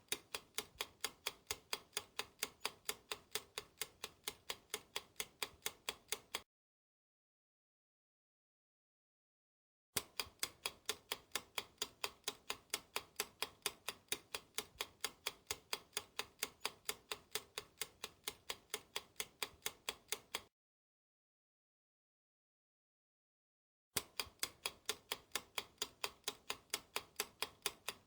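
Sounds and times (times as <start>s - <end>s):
clock ticking: 0.0s - 6.4s, 10.0s - 20.5s, 24.0s - 28.0s.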